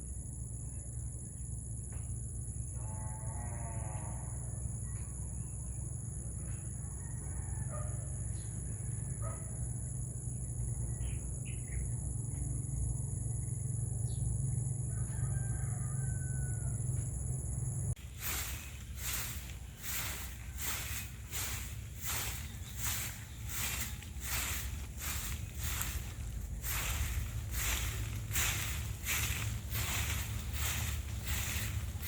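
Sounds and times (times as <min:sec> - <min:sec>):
rooster crowing: 0:07.0 - 0:08.2, 0:14.9 - 0:17.0, 0:18.0 - 0:32.0
steady low hum: 0:17.6 - 0:32.0.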